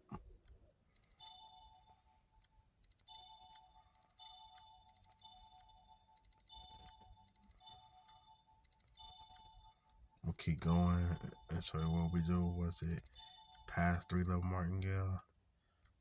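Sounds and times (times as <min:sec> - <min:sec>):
faint clicks: 0:02.4 - 0:10.0.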